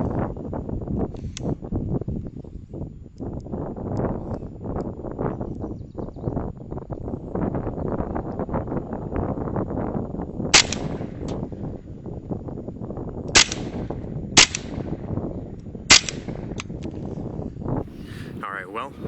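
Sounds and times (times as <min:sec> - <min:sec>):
wind noise on microphone: 0:00.0 - 0:19.0
faint clicks: 0:01.1 - 0:01.5
gunshots: 0:10.6 - 0:11.3, 0:13.4 - 0:14.9, 0:15.9 - 0:16.5.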